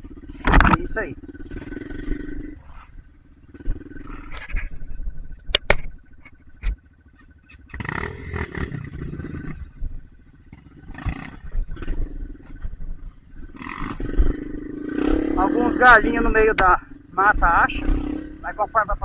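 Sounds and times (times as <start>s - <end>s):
motorcycle engine revving: 0.0s - 19.0s
sharp knocks: 5.5s - 5.9s.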